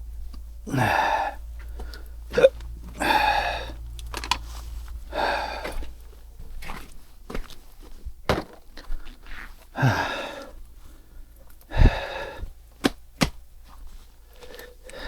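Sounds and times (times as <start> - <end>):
low hum: 0.0 - 8.3
man grunting: 0.6 - 1.4, 2.3 - 3.8, 9.8 - 10.4.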